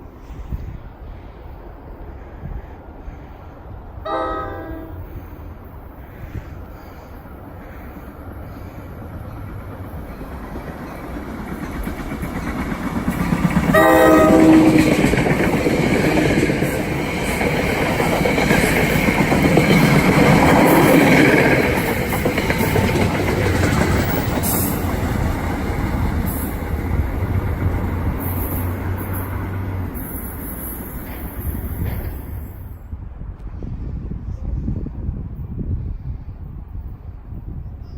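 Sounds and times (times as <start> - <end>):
train rumbling past on rails: 0.0 - 37.9
train horn blast: 4.1 - 5.3, 13.7 - 15.0.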